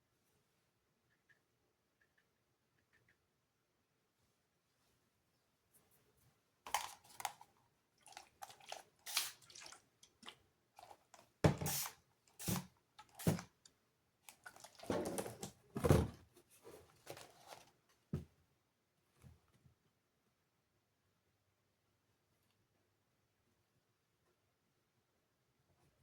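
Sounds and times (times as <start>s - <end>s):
paintbrush dabbing and scratching: 8.1s - 9.7s.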